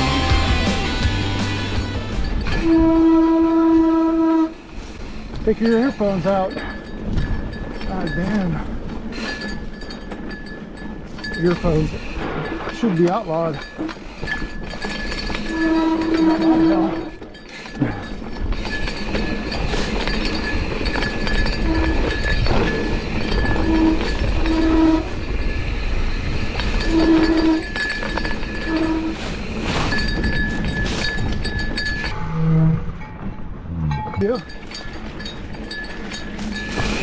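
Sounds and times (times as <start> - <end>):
wind and tyres on dirt: 0.0 - 37.0
bike chain and frame rattling: 3.8 - 32.2, 34.1 - 37.0
short pitched bike squeals: 26.8 - 27.8.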